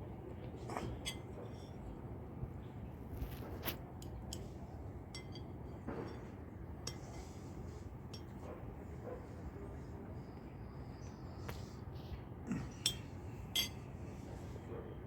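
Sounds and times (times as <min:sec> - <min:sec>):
sharp clicks and clinks: 0:13.6 - 0:13.8.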